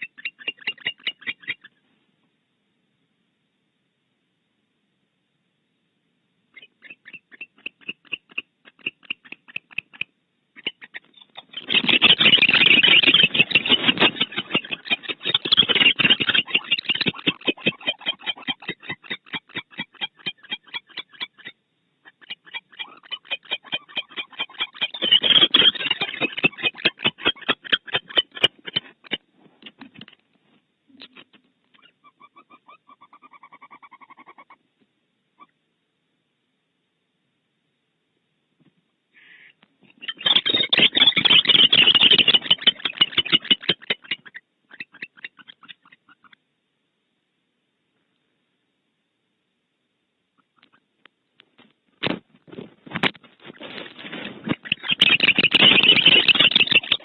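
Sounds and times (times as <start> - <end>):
owl harsh rasping: 0.0 - 1.7, 6.6 - 30.1, 39.2 - 46.4, 53.5 - 57.0
owl quick clicks: 6.6 - 18.2.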